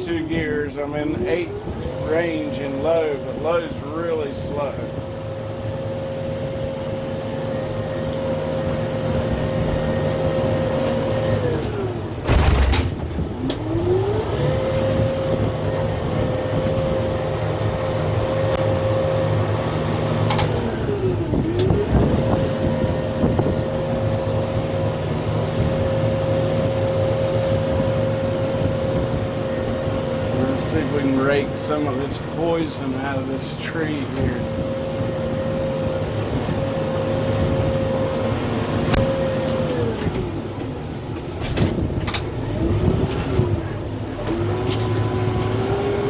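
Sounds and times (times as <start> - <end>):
tractor diesel engine whining: 0.0 - 46.0
loud thump: 12.2 - 13.5.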